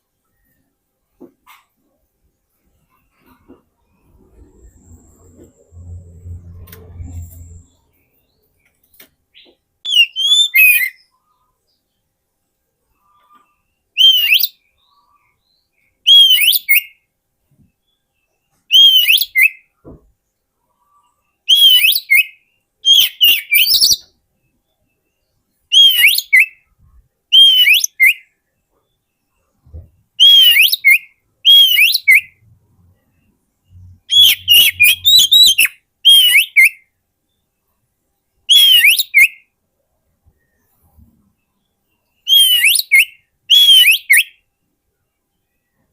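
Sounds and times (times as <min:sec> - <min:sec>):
bird whistled calls: 0:09.9 - 0:11.0, 0:14.0 - 0:14.5, 0:16.1 - 0:16.9, 0:18.7 - 0:19.6, 0:21.5 - 0:24.0, 0:25.7 - 0:26.6, 0:27.3 - 0:28.2, 0:30.2 - 0:32.4, 0:34.0 - 0:36.8, 0:38.5 - 0:39.4, 0:42.3 - 0:44.4.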